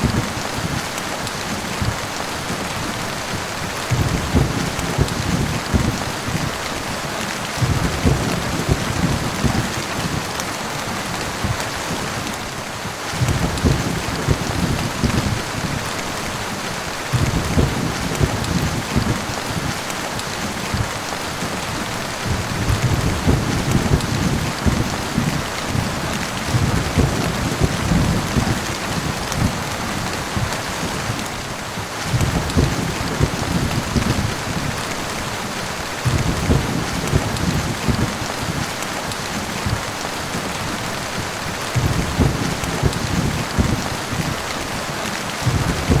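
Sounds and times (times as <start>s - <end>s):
thunder rumbling: 0.0s - 6.9s, 7.5s - 19.8s, 20.4s - 35.4s, 36.0s - 44.8s, 45.4s - 46.0s
heavy rain: 0.0s - 46.0s.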